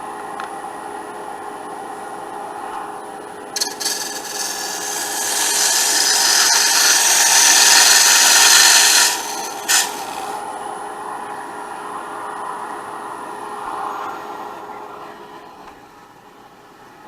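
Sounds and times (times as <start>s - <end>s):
turning tool cutting wood: 3.6s - 10.4s
wood lathe humming: 3.6s - 10.7s.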